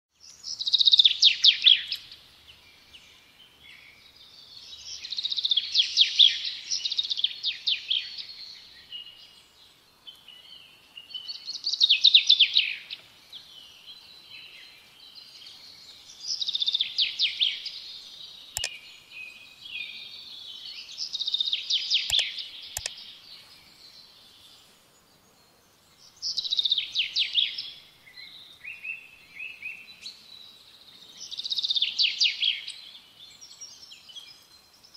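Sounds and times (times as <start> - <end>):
sharp clicks: 18.6 - 18.8, 22.0 - 23.0
songbird trilling: 21.1 - 23.0.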